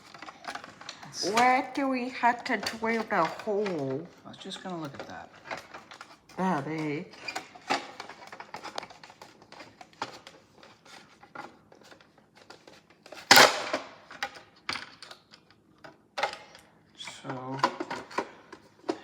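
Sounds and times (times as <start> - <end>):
loud plastic clack: 13.2 - 15.1.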